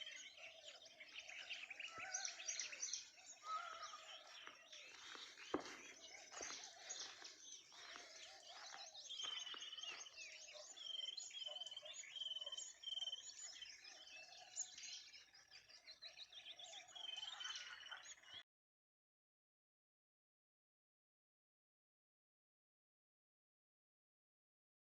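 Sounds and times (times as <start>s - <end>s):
wild birds chirping and calling: 0.0s - 18.4s.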